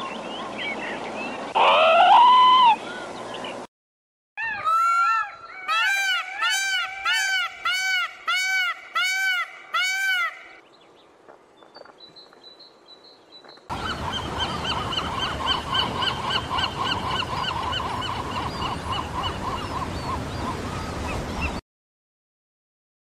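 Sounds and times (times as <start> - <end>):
birds honking: 4.4 - 10.6, 13.7 - 21.2.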